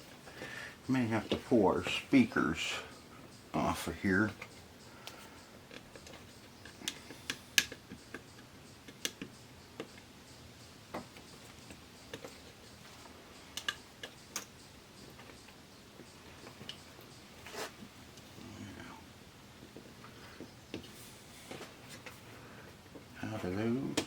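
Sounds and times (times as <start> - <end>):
tools and plastic parts clicking: 4.3 - 10.1, 11.0 - 15.6.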